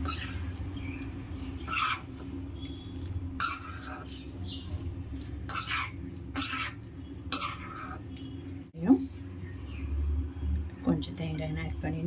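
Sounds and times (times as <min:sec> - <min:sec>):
spoon scraping in a pan: 0:00.0 - 0:08.6.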